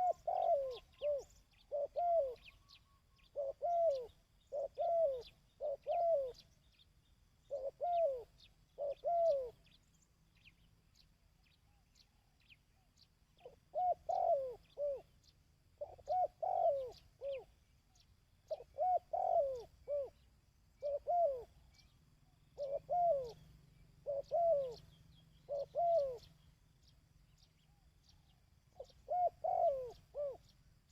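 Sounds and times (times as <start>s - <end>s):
dove cooing: 0.0s - 6.5s, 7.4s - 9.8s, 13.4s - 17.6s, 18.4s - 26.5s, 28.7s - 30.6s
low steady hum: 0.0s - 30.9s
small birds chirping: 0.0s - 30.9s.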